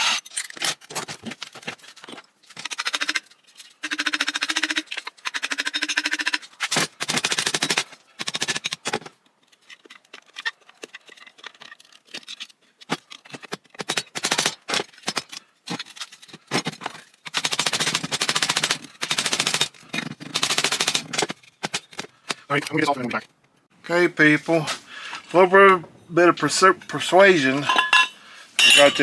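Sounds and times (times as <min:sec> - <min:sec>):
rapid mechanical clicking and rattling: 0:00.0 - 0:22.7.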